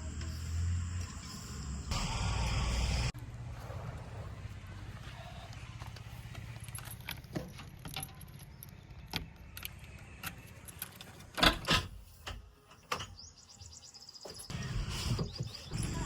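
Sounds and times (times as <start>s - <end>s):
low engine rumble: 0.0s - 9.1s.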